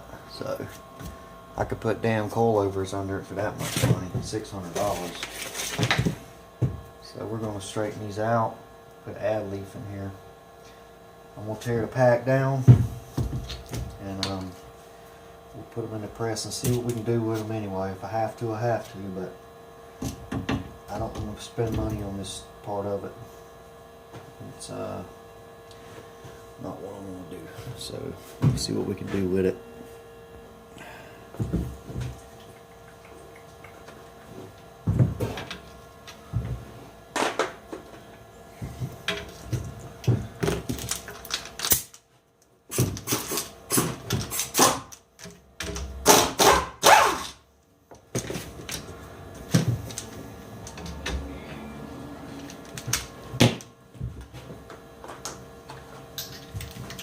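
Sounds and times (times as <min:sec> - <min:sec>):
hand tools and metal clanking: 0:54.3 - 0:57.0.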